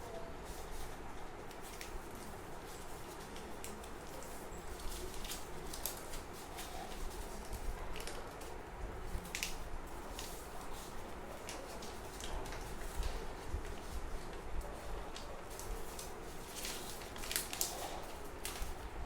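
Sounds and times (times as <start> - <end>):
paper rustling and crinkling: 0.4 - 19.0.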